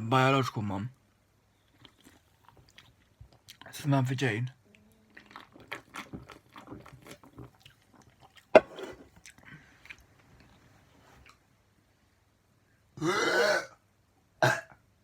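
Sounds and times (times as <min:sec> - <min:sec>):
person chewing crunchy food: 0:01.7 - 0:03.7, 0:05.0 - 0:10.6.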